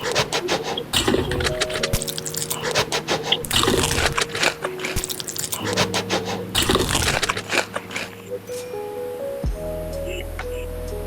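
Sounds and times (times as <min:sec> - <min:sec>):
wet chewing clicks and smacks: 0:00.0 - 0:08.2.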